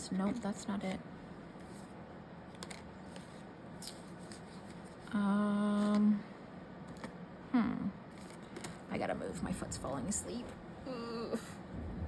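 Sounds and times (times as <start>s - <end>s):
woman humming: 7.5s - 8.0s, 10.8s - 11.6s.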